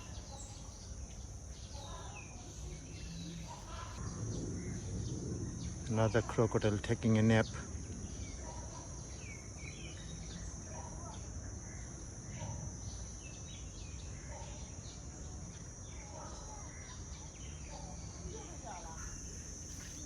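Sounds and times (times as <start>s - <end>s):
high insect drone: 0.0s - 20.0s.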